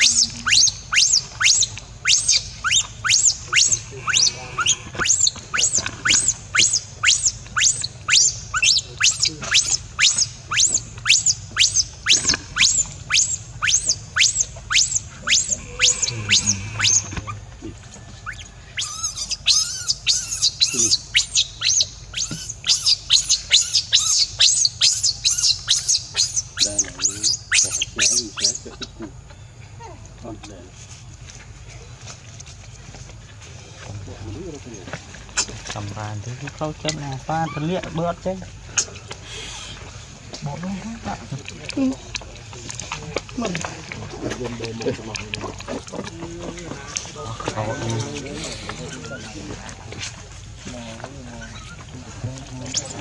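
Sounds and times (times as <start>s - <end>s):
baby monkey crying: 0.0s - 17.5s, 18.2s - 29.0s.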